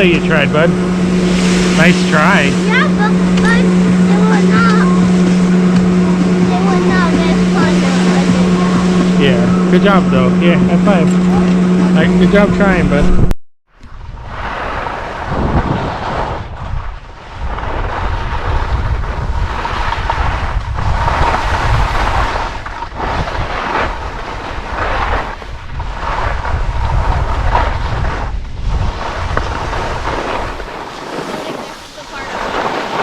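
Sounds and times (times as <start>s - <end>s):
wind buffeting microphone: 0.0s - 33.0s
skis hissing on snow: 1.3s - 2.9s, 30.0s - 33.0s.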